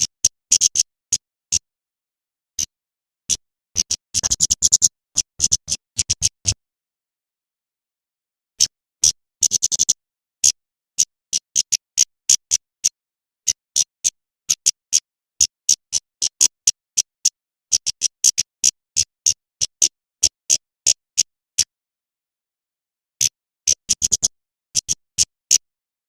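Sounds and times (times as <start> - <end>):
bird chip calls: 0.0 - 1.7, 3.3 - 6.6, 8.6 - 14.8, 23.7 - 25.7.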